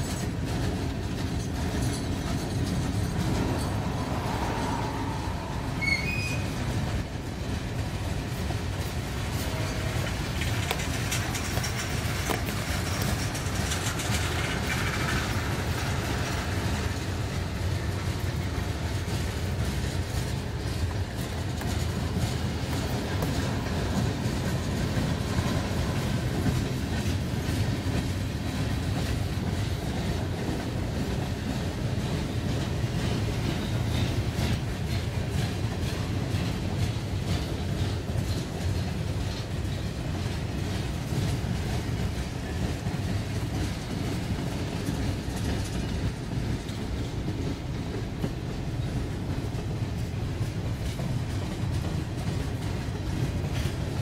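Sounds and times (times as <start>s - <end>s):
freight train wheels clattering: 0.0s - 54.0s
faint wheel squeals: 5.8s - 6.6s.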